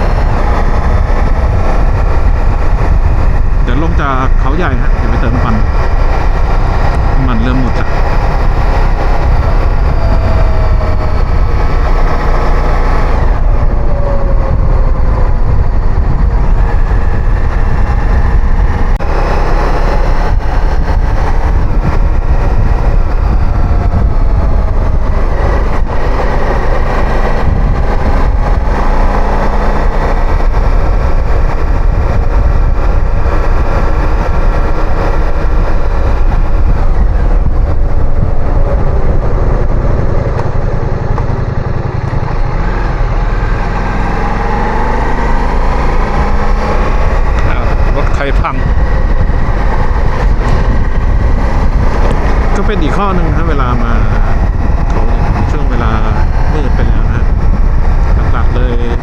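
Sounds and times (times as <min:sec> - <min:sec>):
motorcycle engine running: 0:00.0 - 0:59.0
wind rumble on microphone: 0:00.0 - 0:59.0.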